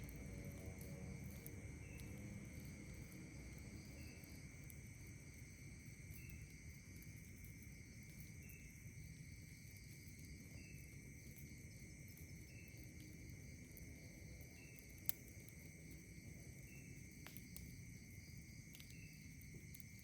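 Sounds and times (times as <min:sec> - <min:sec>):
campfire pop: 0:00.0 - 0:20.0
night insects trilling: 0:00.0 - 0:20.0
short insect chirp: 0:01.4 - 0:20.0.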